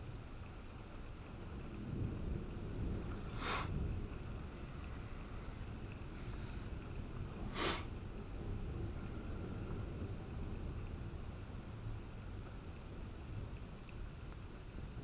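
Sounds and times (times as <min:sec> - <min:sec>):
thunder rumbling: 0:01.3 - 0:13.8
person sniffing: 0:03.4 - 0:03.7, 0:07.5 - 0:07.9.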